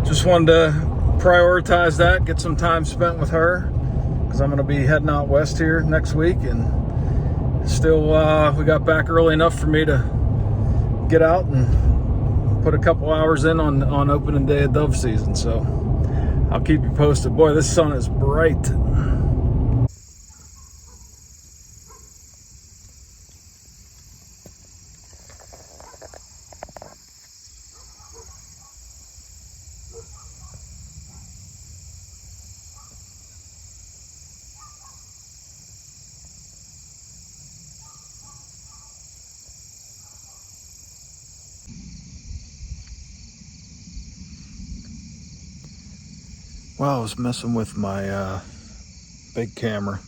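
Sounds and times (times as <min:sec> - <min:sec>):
crickets trilling: 0:00.0 - 0:19.2, 0:19.9 - 0:50.0
low rumble: 0:00.0 - 0:19.9, 0:41.6 - 0:48.8.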